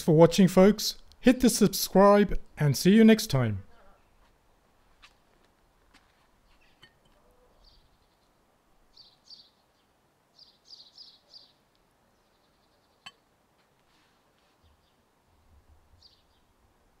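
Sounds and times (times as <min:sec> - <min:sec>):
background hiss: 0:00.0 - 0:17.0
faint bird chirps: 0:06.5 - 0:13.3.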